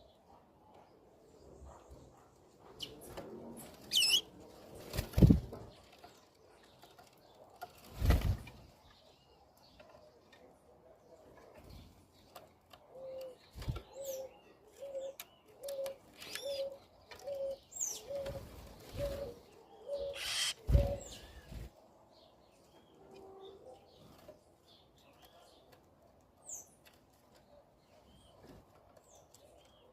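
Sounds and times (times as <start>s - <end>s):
small birds chirping: 0.0s - 23.0s, 23.6s - 29.9s
dove cooing: 12.8s - 21.4s.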